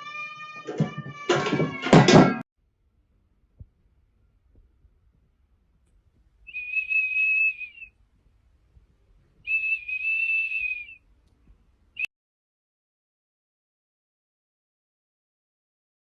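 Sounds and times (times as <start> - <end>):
high whistled notes: 6.5 - 7.9, 9.5 - 11.0.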